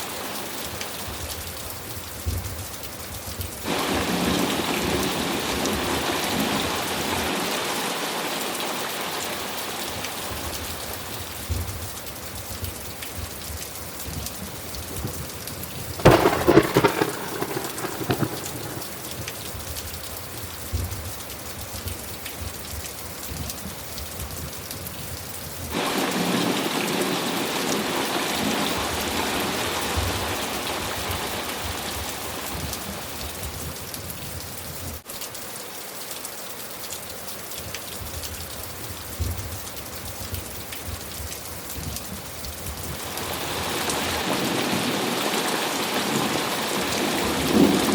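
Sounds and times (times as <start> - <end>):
steady rainfall: 0.0 - 47.9
thunderclap: 15.8 - 19.8
storm noise: 15.8 - 19.9.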